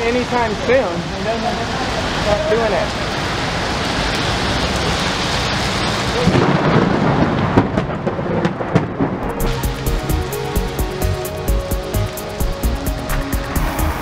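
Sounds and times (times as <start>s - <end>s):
rain pouring: 0.0s - 14.0s
thunder rumbling: 3.5s - 14.0s.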